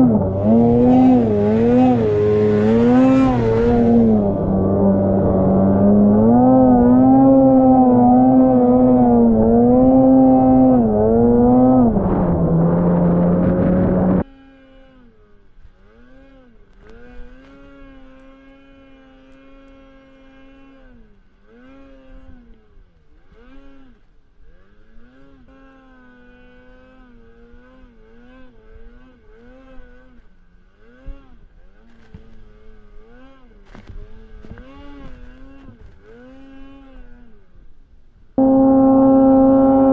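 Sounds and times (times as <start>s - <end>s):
vehicle engine revving: 0.0s - 14.4s, 23.2s - 37.6s, 38.4s - 39.9s.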